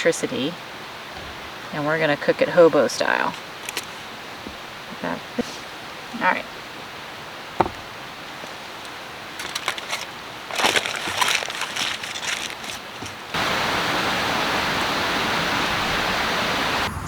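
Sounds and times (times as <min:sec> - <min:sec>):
pot simmering hiss: 0:00.0 - 0:16.9
clicks and clatters: 0:08.8 - 0:13.4.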